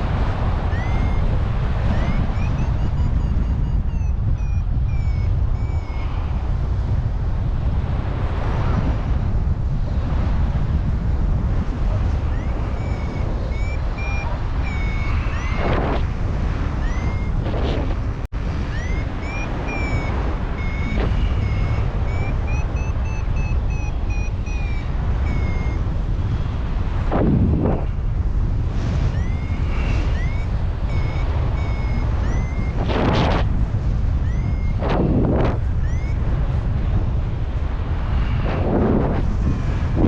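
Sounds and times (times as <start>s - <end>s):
wind noise on microphone: 0.0s - 40.0s
variometer beeping: 0.5s - 6.5s, 11.8s - 17.9s, 18.5s - 26.0s, 28.8s - 36.6s.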